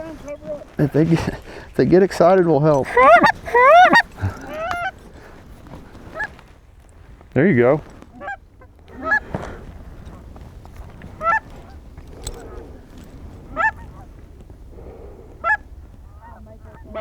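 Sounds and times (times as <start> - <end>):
goose call honks: 2.8 - 4.9, 16.2 - 17.0.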